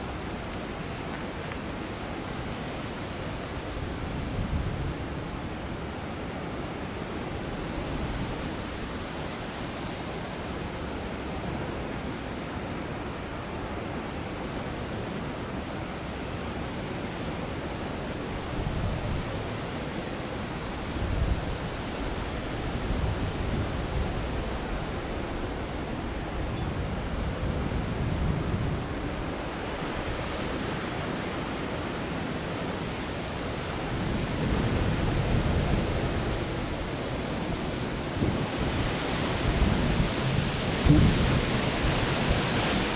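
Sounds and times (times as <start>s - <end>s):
gusty wind blowing: 18.2s - 31.1s, 32.7s - 42.9s
wind buffeting microphone: 33.5s - 42.9s.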